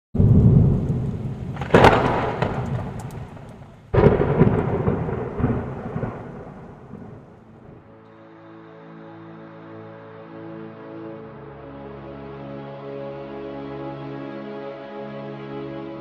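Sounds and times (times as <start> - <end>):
thunder clapping and rumbling: 0.2 - 7.9
soft music: 7.6 - 16.0.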